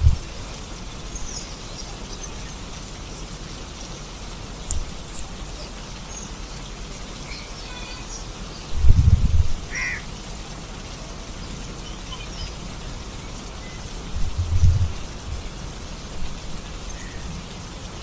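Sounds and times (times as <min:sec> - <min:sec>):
steady rain falling: 0:00.0 - 0:18.0
short bird calls: 0:04.8 - 0:08.7, 0:09.7 - 0:10.1
low rumble: 0:14.2 - 0:15.4.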